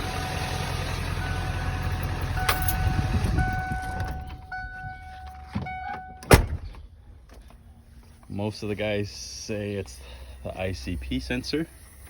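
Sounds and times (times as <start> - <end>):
diesel engine idling: 0.0 - 6.2, 6.8 - 12.0
thin steady whine: 7.5 - 12.0.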